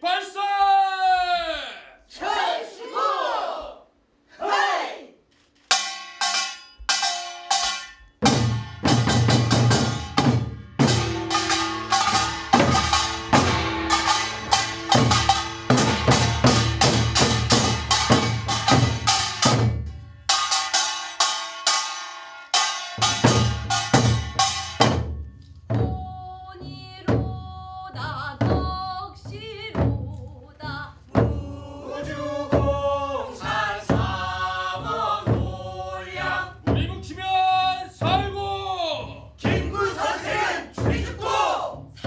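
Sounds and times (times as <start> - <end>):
sharp drum strikes: 5.7 - 25.9
deep drum: 8.2 - 20.6.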